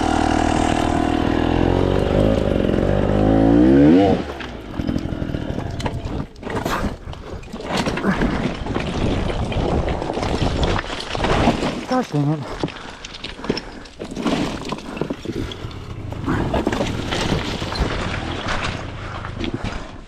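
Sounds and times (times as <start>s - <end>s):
dirt bike engine revving: 0.0s - 6.2s
knocks and scrapes: 4.3s - 20.0s.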